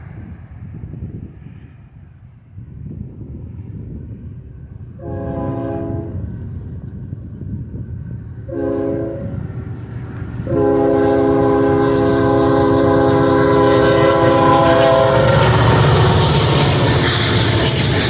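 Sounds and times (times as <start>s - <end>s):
locomotive air horn blasts: 5.0s - 6.2s, 8.5s - 9.5s, 10.4s - 17.8s
train wheels on rails: 5.9s - 18.0s.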